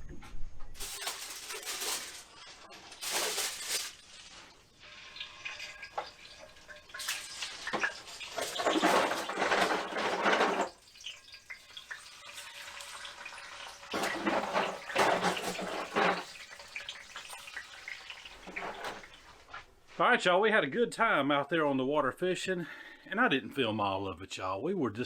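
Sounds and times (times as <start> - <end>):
running water: 2.9 - 19.6.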